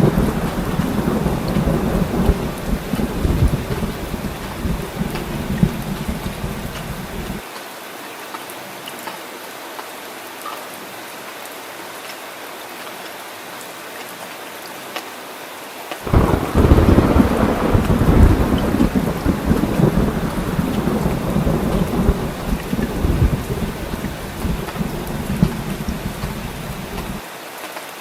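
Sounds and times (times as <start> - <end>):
heavy rain falling: 0.0 - 7.4, 16.0 - 28.0
thunder rumbling: 0.0 - 7.4, 16.0 - 27.2.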